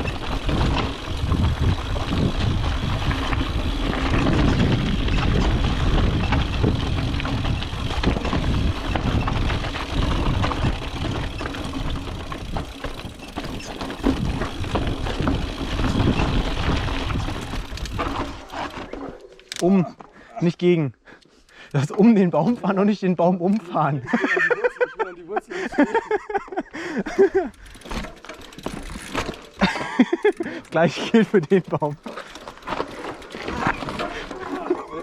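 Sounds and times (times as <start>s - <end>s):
wind on microphone: 0.0s - 11.2s
bike tyres rolling over ground: 0.0s - 19.6s, 27.2s - 35.0s
bike rattling over bumps: 0.0s - 19.7s, 25.7s - 35.0s.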